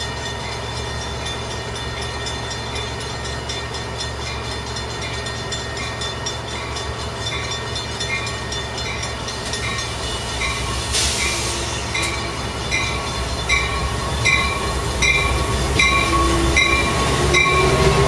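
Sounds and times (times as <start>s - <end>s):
locomotive bell ringing: 0.0s - 18.0s
locomotive engine rumble: 0.0s - 18.0s
rising squeal: 8.8s - 18.0s
brief hiss: 10.8s - 11.9s.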